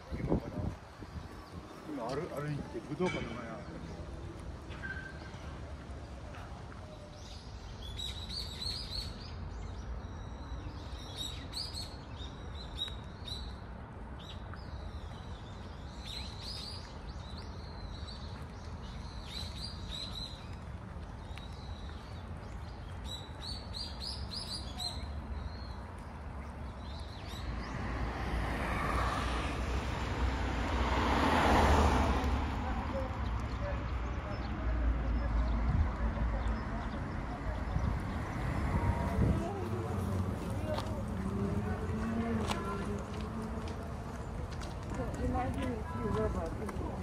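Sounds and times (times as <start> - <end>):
small birds chirping: 0.1 - 30.2.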